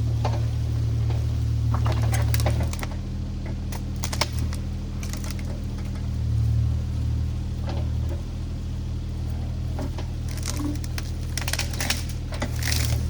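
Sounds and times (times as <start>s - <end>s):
diesel construction machine running: 0.0s - 13.0s
sharp clanks and knocks: 0.2s - 6.1s.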